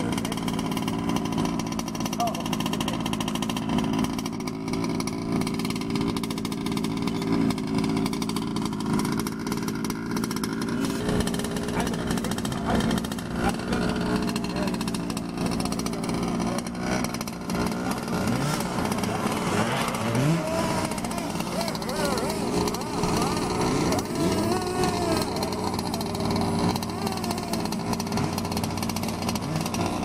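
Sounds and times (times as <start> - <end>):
engine revving: 0.0 - 30.0
small two-stroke engines buzzing: 0.0 - 30.0.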